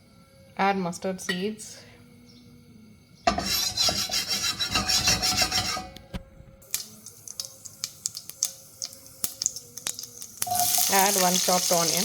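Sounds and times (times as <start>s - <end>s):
seeds sizzling in hot oil: 6.6s - 12.0s.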